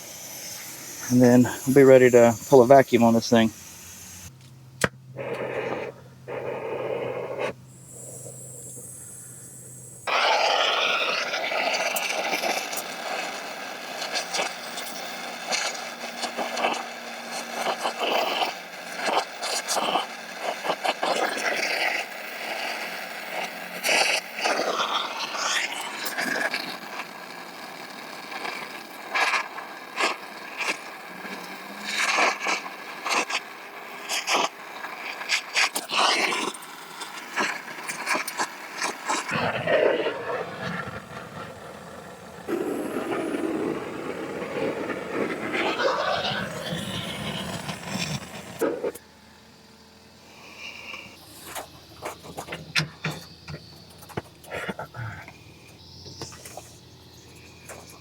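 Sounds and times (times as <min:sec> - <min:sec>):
hiss of gas: 0:00.0 - 0:04.3, 0:05.1 - 0:49.0, 0:50.2 - 0:58.0
low hum: 0:00.0 - 0:11.6, 0:39.3 - 0:58.0.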